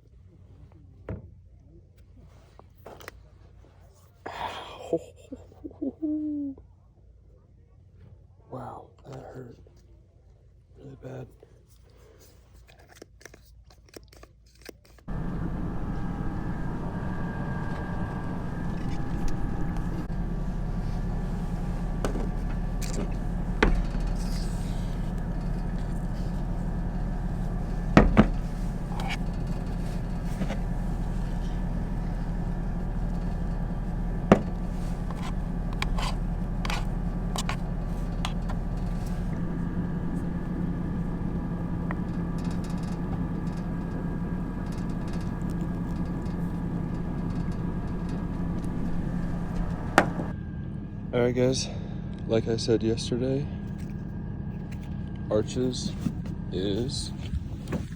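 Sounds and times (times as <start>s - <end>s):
vehicle running with low hum: 15.0s - 57.9s
sharp clicks and knocks: 15.1s - 50.3s.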